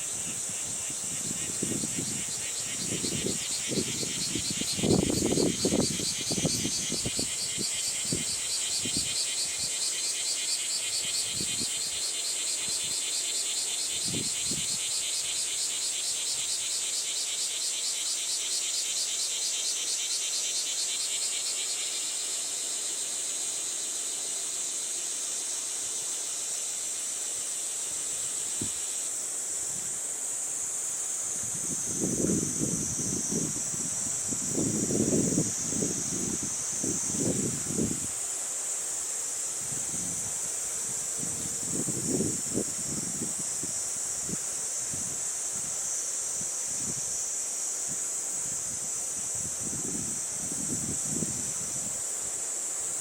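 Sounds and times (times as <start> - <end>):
insects trilling: 0.0 - 53.0
wind buffeting microphone: 0.2 - 9.1.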